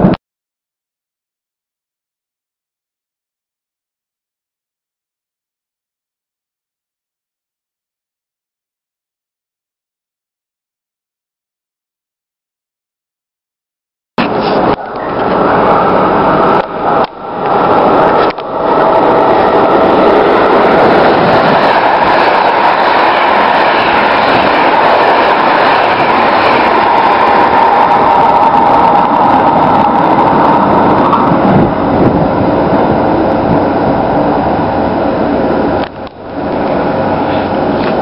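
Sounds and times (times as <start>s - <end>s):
train rushing past on rails: 14.2s - 38.0s
steady high tone: 14.6s - 37.7s.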